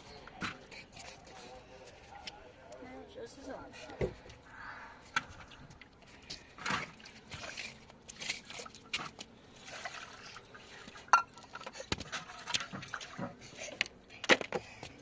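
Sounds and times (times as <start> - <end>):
water splashing and trickling: 5.3 - 13.7.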